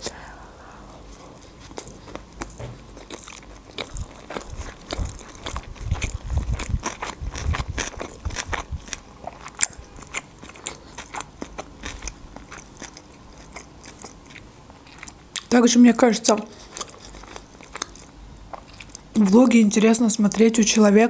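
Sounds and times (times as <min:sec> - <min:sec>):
chewing with wet clicks: 0:01.6 - 0:15.5, 0:16.6 - 0:19.1.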